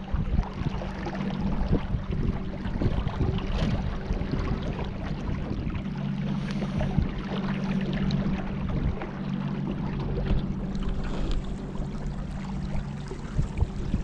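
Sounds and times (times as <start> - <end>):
wind noise: 0.0 - 7.4, 10.3 - 14.0
boat motor droning: 0.0 - 14.0.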